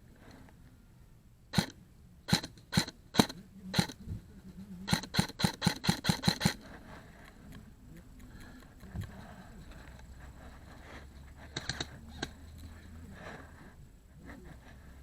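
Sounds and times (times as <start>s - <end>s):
airsoft gun firing: 1.5s - 4.0s, 4.9s - 6.6s.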